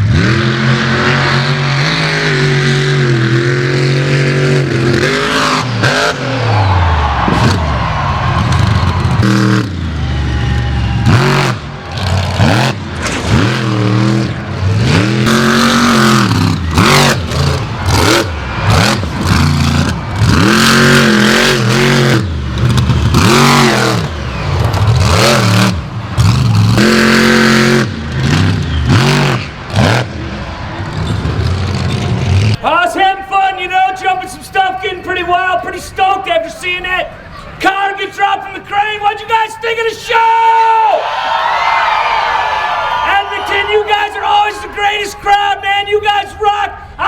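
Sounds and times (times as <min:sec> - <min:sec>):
monster truck engine revving: 0:00.0 - 0:32.6.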